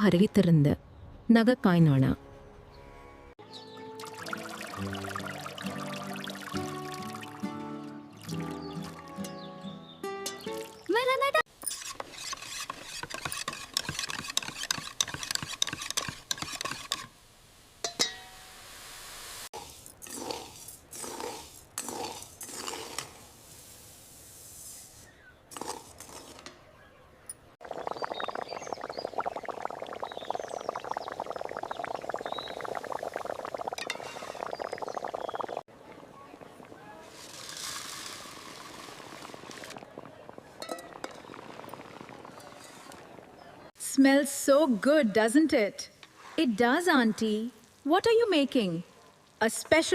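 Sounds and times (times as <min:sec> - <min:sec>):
kitchen utensils clinking and scraping: 0:11.6 - 0:17.1
food hissing in a pan: 0:18.4 - 0:25.8, 0:37.1 - 0:39.7.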